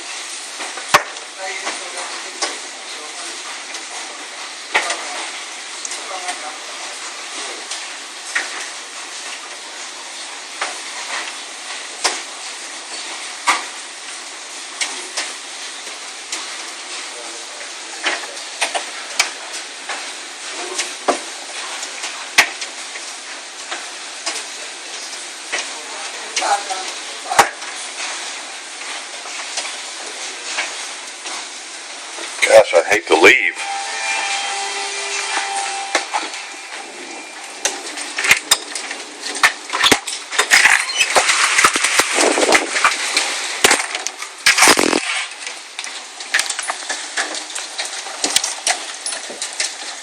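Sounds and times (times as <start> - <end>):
large hailstones knocking: 0.0 - 31.2, 37.6 - 50.0
rain and hail rushing: 0.0 - 50.0.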